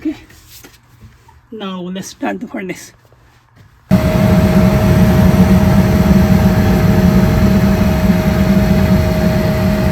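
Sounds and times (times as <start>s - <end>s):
furnace motor humming: 3.9s - 9.9s
thin steady whine: 3.9s - 9.9s.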